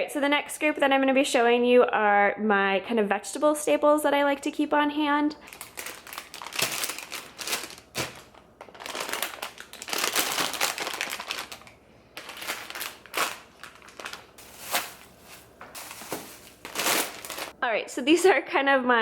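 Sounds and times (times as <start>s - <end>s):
plastic bags crinkling: 5.4s - 17.6s.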